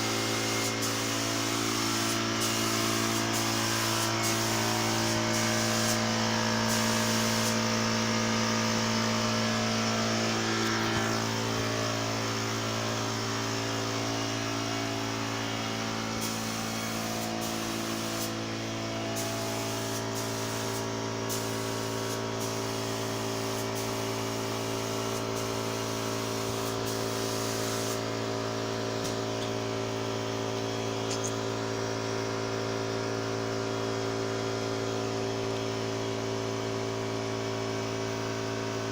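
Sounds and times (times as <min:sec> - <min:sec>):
spray gun hissing: 0:00.0 - 0:12.7, 0:15.9 - 0:28.2
air compressor motor humming: 0:00.0 - 0:38.9.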